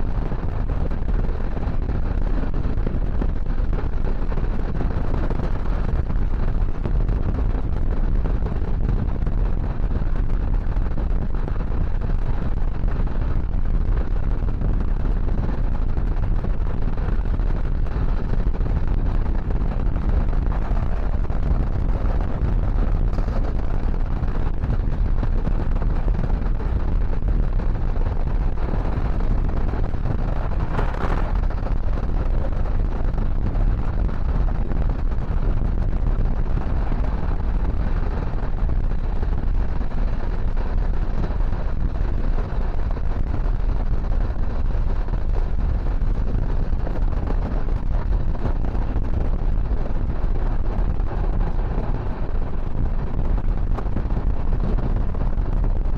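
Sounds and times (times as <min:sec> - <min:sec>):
train rumble and rush: 0:16.1 - 0:34.5.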